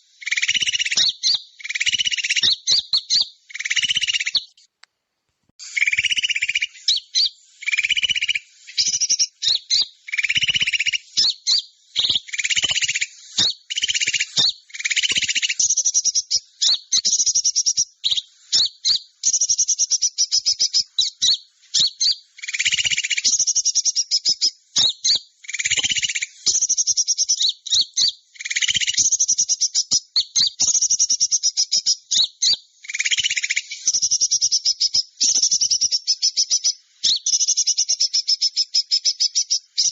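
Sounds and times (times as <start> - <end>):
high-pitched bird chattering and trilling: 0.0 - 4.7, 5.6 - 39.9.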